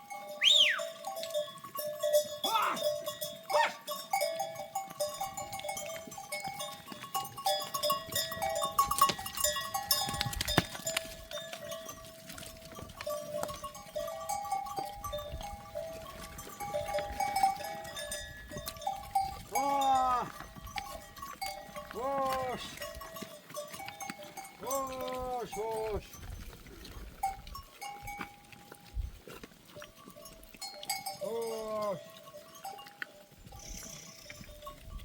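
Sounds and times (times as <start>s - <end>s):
goat bells clinking: 0.0s - 35.0s
goat bleating: 19.5s - 20.4s, 21.8s - 22.9s, 24.6s - 25.8s, 31.2s - 32.1s.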